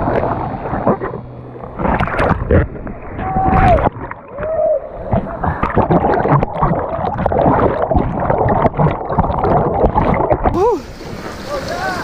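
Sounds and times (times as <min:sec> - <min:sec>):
water splashes: 0:00.0 - 0:12.0
whitewater rushing: 0:10.6 - 0:12.0.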